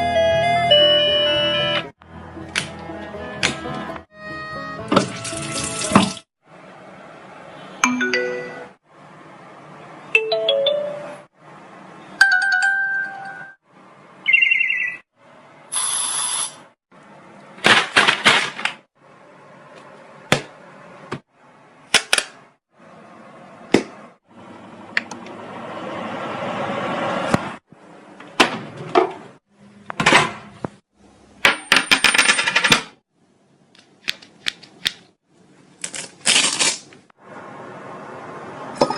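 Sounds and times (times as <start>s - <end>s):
chime and ringtone tones: 0.0s - 1.9s, 7.8s - 8.8s, 10.2s - 11.2s, 12.2s - 13.6s.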